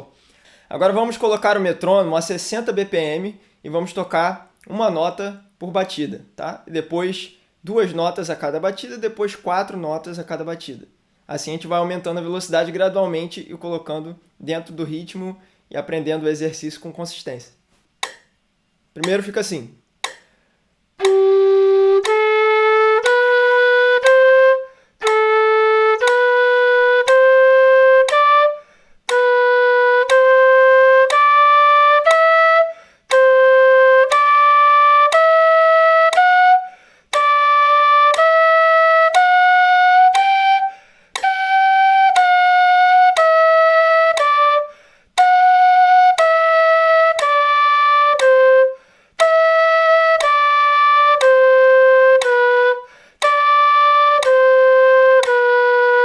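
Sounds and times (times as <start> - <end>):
breath between notes: 0.1 - 0.7, 20.2 - 20.8, 28.6 - 29.0, 32.7 - 33.1, 36.7 - 37.1, 40.7 - 41.2, 44.7 - 45.1, 48.8 - 49.2, 52.8 - 53.2
metronome clicks: 18.0 - 18.4, 20.0 - 20.4, 21.0 - 22.4, 23.0 - 24.4, 25.0 - 25.4, 26.0 - 28.3, 29.0 - 32.4, 33.1 - 33.4, 34.0 - 35.5, 36.1 - 36.5, 37.1 - 37.5, 38.1 - 38.5, 39.1 - 39.4, 41.1 - 42.4, 43.0 - 43.5, 44.1 - 44.5, 46.1 - 46.5, 48.1 - 48.6, 49.2 - 55.7
end-blown flute notes: 21.0 - 56.0.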